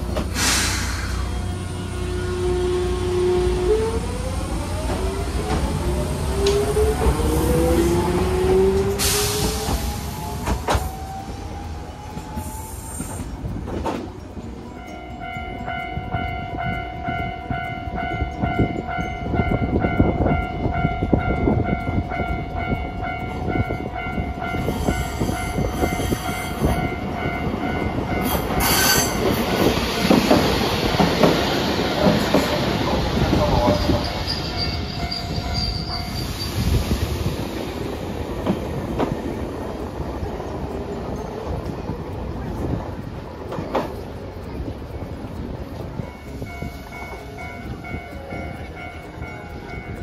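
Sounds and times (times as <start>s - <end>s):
tram motor whine: 0.0s - 50.0s
tram squeal: 0.0s - 50.0s
tram wheels rumbling on rails: 0.0s - 50.0s.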